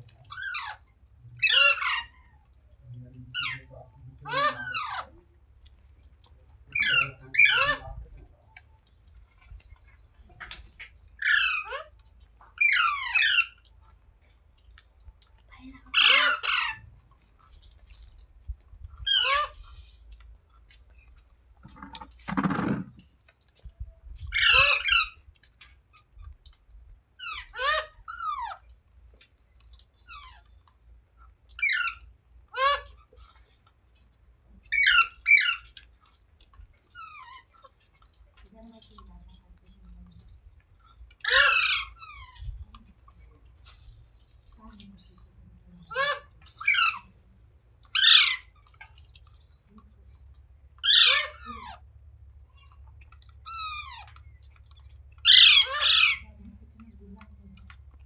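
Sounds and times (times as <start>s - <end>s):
parakeet calling: 1.4s - 2.2s, 6.7s - 7.8s, 11.2s - 11.9s, 12.6s - 13.6s, 19.0s - 19.6s, 24.3s - 25.2s, 31.6s - 33.0s, 34.7s - 35.8s, 41.2s - 42.5s, 45.8s - 47.1s, 47.9s - 48.5s, 50.8s - 51.8s, 55.2s - 56.3s.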